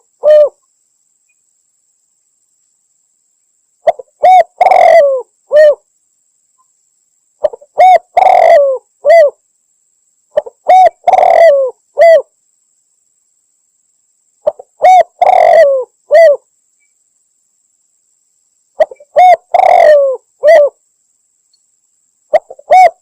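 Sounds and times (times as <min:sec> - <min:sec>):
dove cooing: 0:00.0 - 0:00.6, 0:03.8 - 0:05.8, 0:07.4 - 0:09.4, 0:10.3 - 0:12.3, 0:14.4 - 0:16.4, 0:18.8 - 0:20.8, 0:22.3 - 0:23.0.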